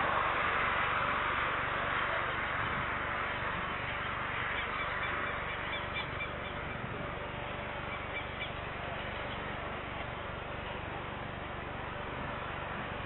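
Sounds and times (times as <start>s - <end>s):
outdoor background hiss: 0.0s - 13.0s
small birds chirping: 3.6s - 9.6s.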